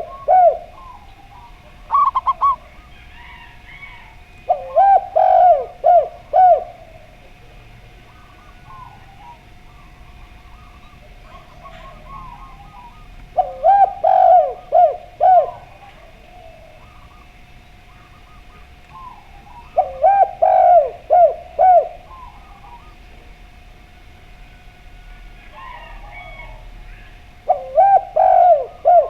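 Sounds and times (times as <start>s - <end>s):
faint higher cooing: 0.0s - 23.4s, 24.7s - 29.0s
doves cooing loudly: 0.0s - 29.0s.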